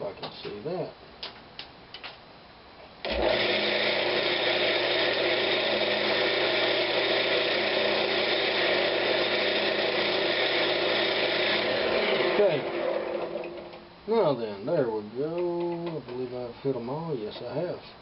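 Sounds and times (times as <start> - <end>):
lathe motor humming: 3.1 - 13.9.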